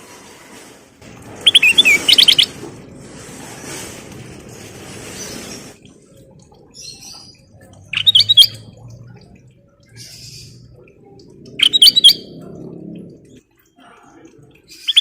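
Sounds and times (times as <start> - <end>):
bird chirps: 1.4 - 2.5, 6.8 - 8.8, 11.6 - 12.4, 14.7 - 15.0
bulbul singing: 1.4 - 2.5, 6.4 - 12.4, 14.5 - 15.0.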